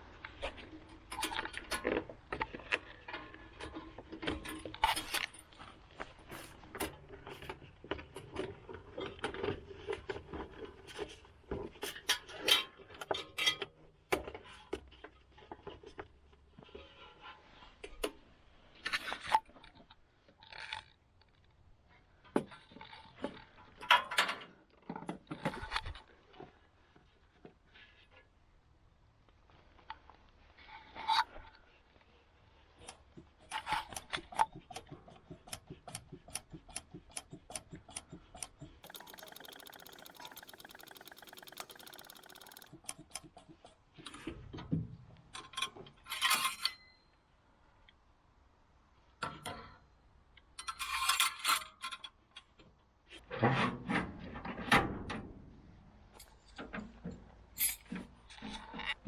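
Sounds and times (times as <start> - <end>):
sharp clicks: 38.8 - 43.2.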